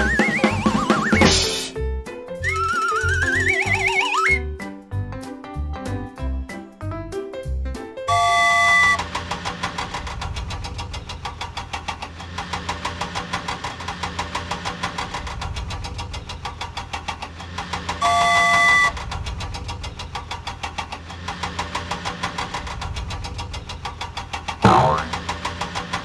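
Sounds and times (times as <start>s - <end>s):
diesel engine chugging: 0.0s - 1.6s, 2.4s - 5.2s, 8.0s - 26.0s
loud horn honk: 8.1s - 9.0s, 18.0s - 18.9s.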